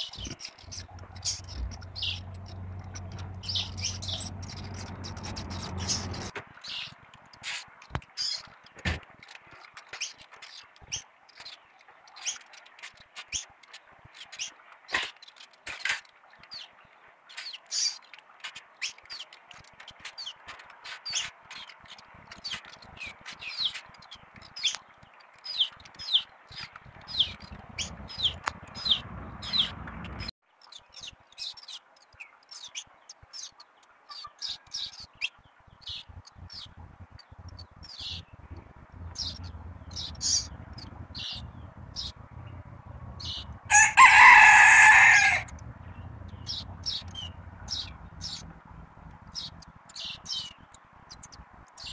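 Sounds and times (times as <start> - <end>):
small birds chirping: 0.0 - 51.9
low rumble: 0.6 - 6.3, 27.0 - 30.3, 36.1 - 50.5.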